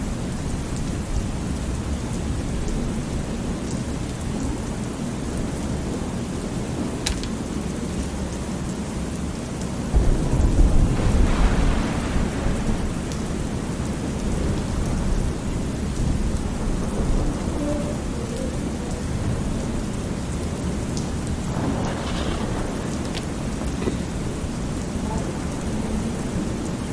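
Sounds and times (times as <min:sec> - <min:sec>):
steady rain: 0:00.0 - 0:26.9
thunder rumbling: 0:09.9 - 0:26.9.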